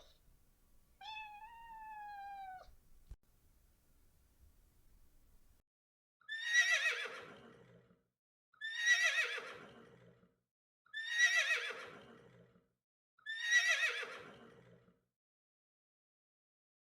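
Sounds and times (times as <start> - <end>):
horse whinnying: 6.3 - 7.7, 8.6 - 9.8, 11.0 - 12.2, 13.3 - 14.5.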